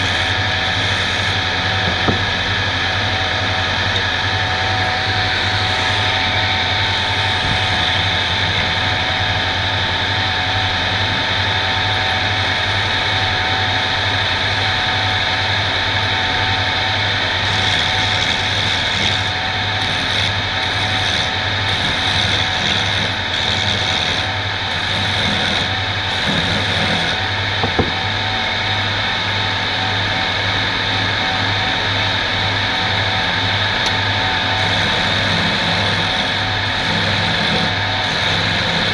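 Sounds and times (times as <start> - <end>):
woodworking machine humming: 0.0 - 38.9
hiss of wood being worked: 5.2 - 9.0, 17.4 - 27.9, 34.5 - 38.9.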